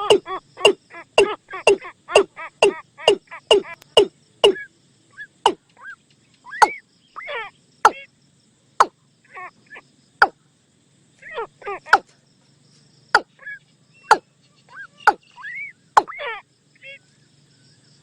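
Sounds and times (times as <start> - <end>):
decoy call knocking notes: 0.0 - 4.7.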